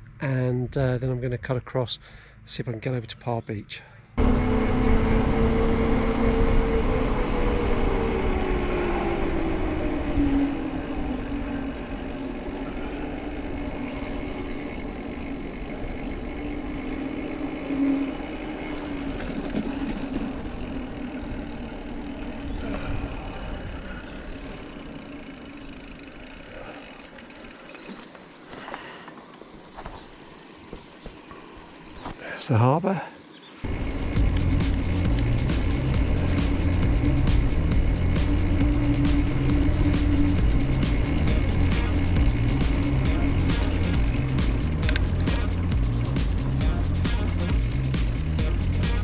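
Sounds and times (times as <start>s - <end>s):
humming tone: 4.2s - 25.9s, 33.7s - 49.0s
bike tyre rumble: 4.2s - 32.3s, 33.6s - 49.0s
wind buffeting microphone: 19.0s - 24.8s.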